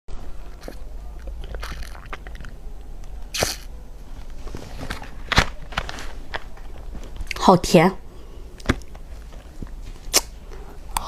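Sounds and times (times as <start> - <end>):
person chewing crunchy food: 0.5 - 2.6.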